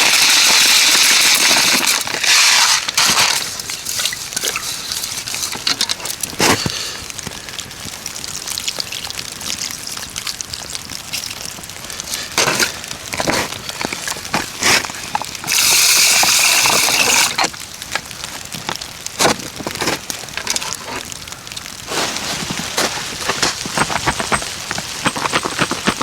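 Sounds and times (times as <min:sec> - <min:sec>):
loud steady hiss: 0:00.0 - 0:08.4, 0:11.8 - 0:18.4
water sloshing: 0:00.7 - 0:26.0.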